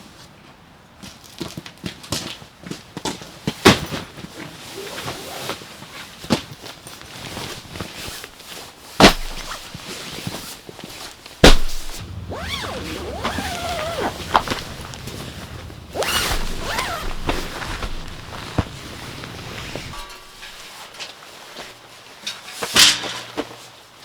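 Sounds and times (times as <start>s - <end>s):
low steady hum: 11.6s - 20.6s
wavering tone: 12.0s - 18.4s.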